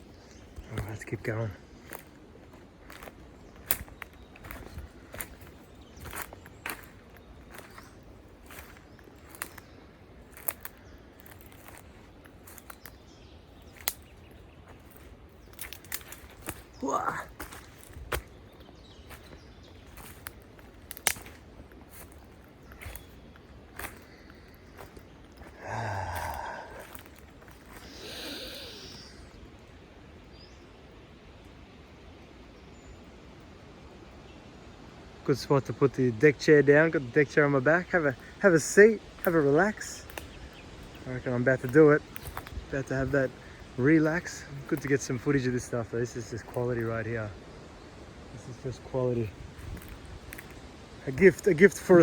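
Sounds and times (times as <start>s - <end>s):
footsteps on forest trail: 0.0s - 29.4s, 37.0s - 52.0s
soft high hiss: 0.0s - 52.0s
person sighing: 16.8s - 17.4s, 25.5s - 29.4s.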